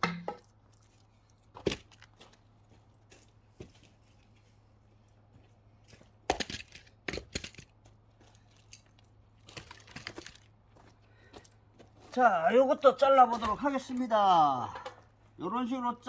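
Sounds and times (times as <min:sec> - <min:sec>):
axe chopping logs: 0:00.0 - 0:00.5, 0:06.2 - 0:07.8.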